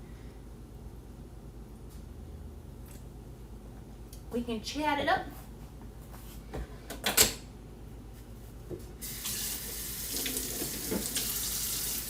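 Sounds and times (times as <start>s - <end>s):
tap water running into sink: 9.0s - 12.0s.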